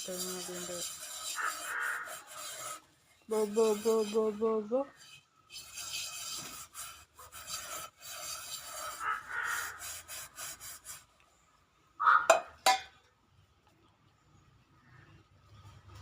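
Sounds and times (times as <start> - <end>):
scraping rustling noise: 0.0 - 11.1
sharp bird calls: 12.0 - 12.6.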